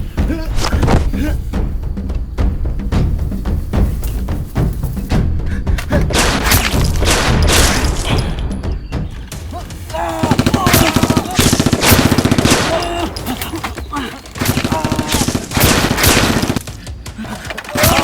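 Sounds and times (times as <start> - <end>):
background music: 0.0 - 18.0
raised voices: 9.5 - 11.6, 12.6 - 15.4, 17.2 - 18.0.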